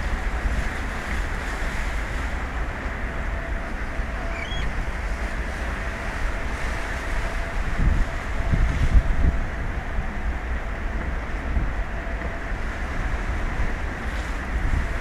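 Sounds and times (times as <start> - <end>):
sea rushing: 0.0 - 15.0
wind buffeting microphone: 0.0 - 15.0
high chirp: 4.3 - 4.7.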